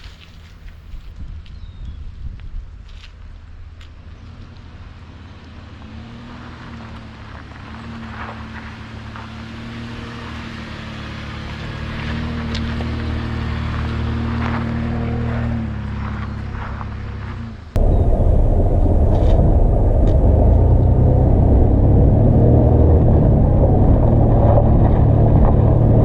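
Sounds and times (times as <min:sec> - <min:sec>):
pickup engine running under load: 0:05.3 - 0:26.0
tyres rolling over gravel: 0:06.3 - 0:26.0.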